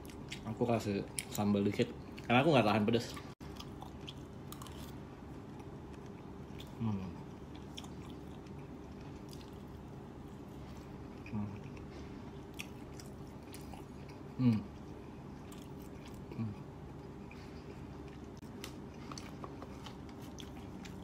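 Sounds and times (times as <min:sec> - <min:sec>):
person chewing: 0:00.0 - 0:01.4, 0:03.1 - 0:21.0
low background hum: 0:00.0 - 0:21.0.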